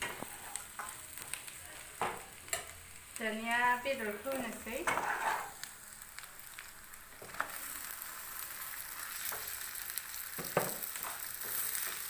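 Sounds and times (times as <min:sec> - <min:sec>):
chicken sizzling in hot oil: 0:00.0 - 0:12.0
spatula knocking and scraping pan: 0:04.8 - 0:05.5, 0:10.4 - 0:12.0.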